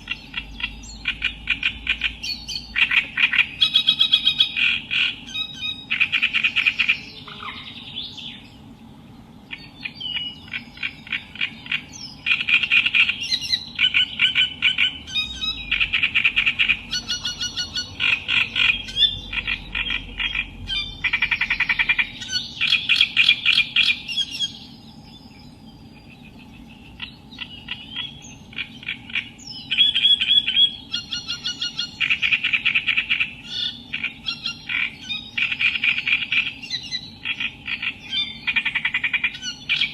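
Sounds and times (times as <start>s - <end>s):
reed warbler singing: 0.0s - 39.9s.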